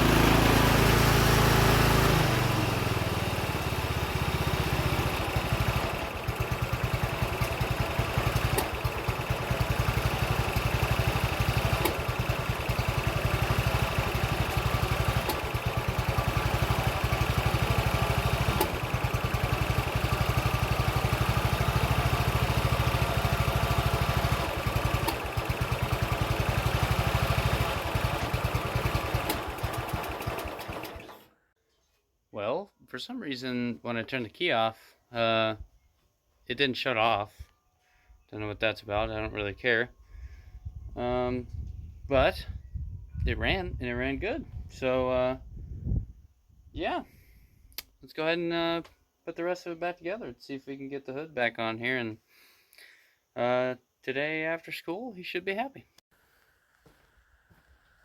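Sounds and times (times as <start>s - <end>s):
riding mower engine running: 0.0s - 31.4s.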